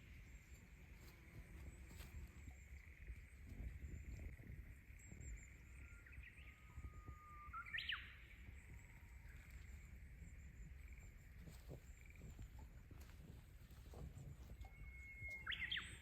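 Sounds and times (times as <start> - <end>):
bird call whistle and sweeps: 14.6 - 16.0.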